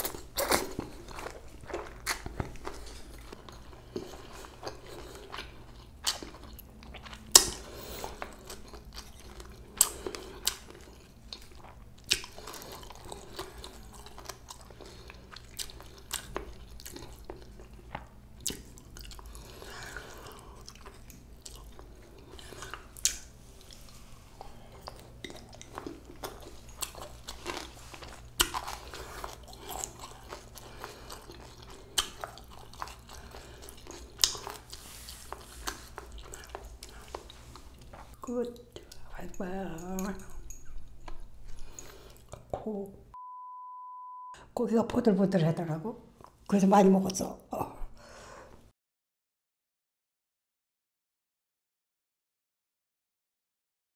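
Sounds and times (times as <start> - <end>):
person chewing crunchy food: 0.0 - 42.6.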